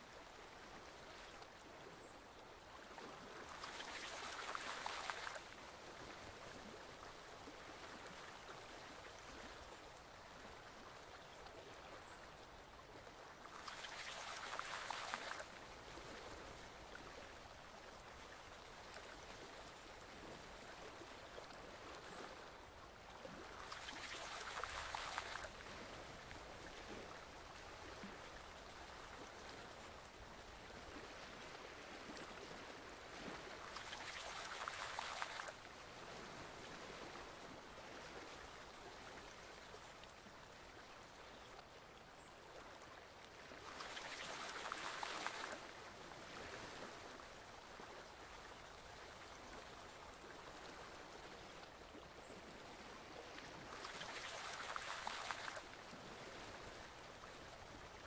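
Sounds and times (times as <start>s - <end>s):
stream water flowing: 0.0s - 58.0s
water splashing: 3.6s - 5.4s, 23.3s - 28.2s, 31.0s - 35.6s, 43.7s - 45.6s, 53.7s - 55.7s.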